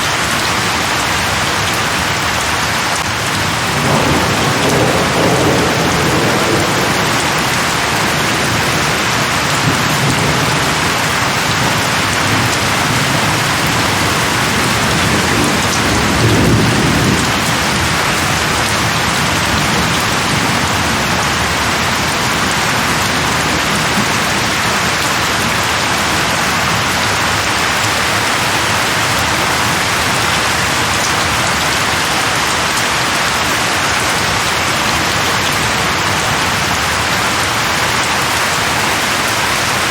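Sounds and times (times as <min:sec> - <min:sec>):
heavy rain falling: 0:00.0 - 0:39.9
low rolling thunder: 0:03.3 - 0:32.5.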